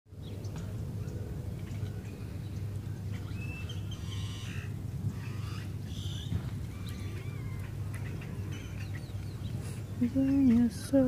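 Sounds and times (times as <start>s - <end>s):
steady low rumble: 0.1s - 11.0s
rough bird call: 1.8s - 10.0s.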